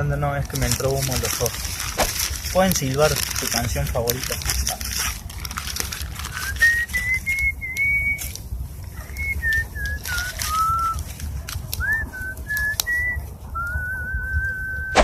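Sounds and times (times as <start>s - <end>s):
person whistling a slow tune: 6.4s - 8.4s, 9.0s - 11.0s, 11.8s - 15.0s.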